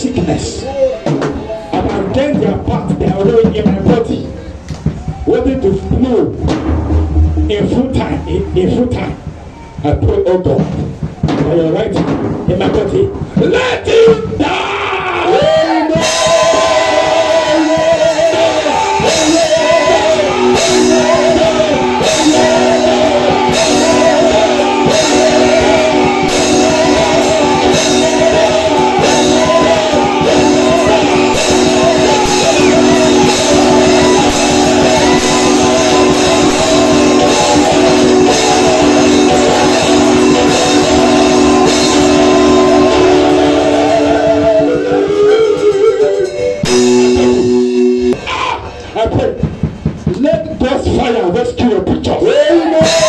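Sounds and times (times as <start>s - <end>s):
held chords: 0.0s - 9.8s, 15.5s - 48.3s
regular beat: 0.9s - 14.4s, 15.4s - 48.3s, 49.0s - 51.4s
guitar playing melodic runs: 20.1s - 48.2s.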